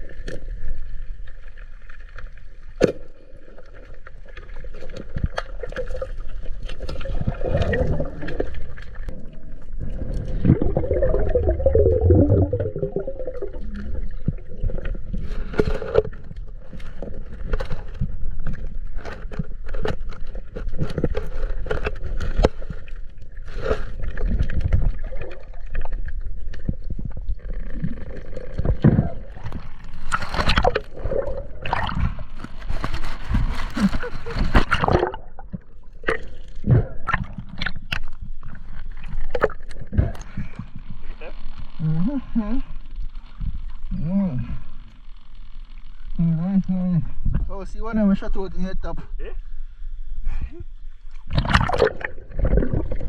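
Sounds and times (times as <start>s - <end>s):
low rumble: 7.7s - 15.3s.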